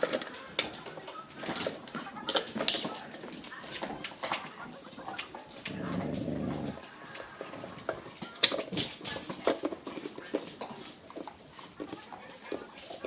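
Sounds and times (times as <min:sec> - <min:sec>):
dog growling: 0:05.5 - 0:07.6.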